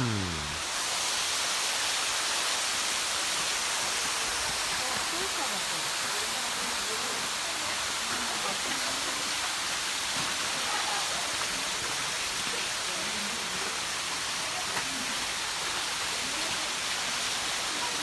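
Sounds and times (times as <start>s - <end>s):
faint voices of people: 0.0s - 0.6s.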